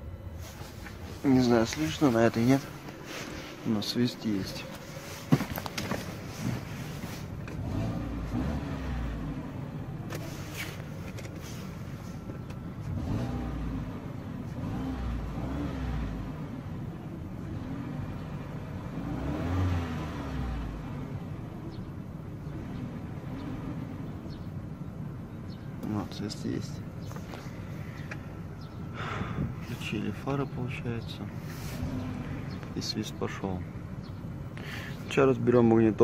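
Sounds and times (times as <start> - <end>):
car engine revving: 0.4 - 12.2, 12.8 - 24.5, 31.3 - 34.9.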